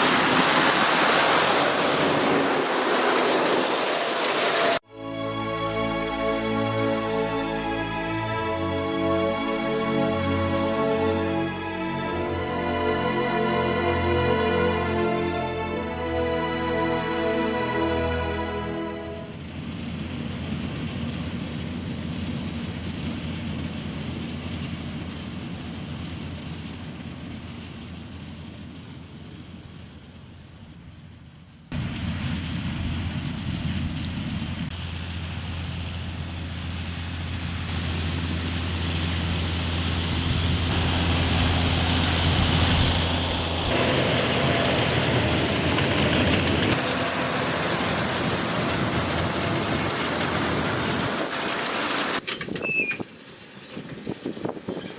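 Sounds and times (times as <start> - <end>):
tractor diesel engine running: 19.2 - 54.9
thin high whine: 34.7 - 45.3.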